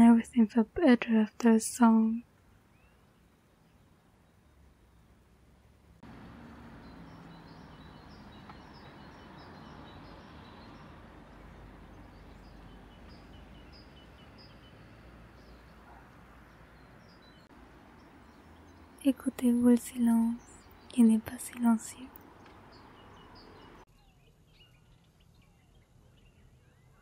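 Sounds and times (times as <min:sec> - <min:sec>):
small bird chirping: 0:06.0 - 0:27.0.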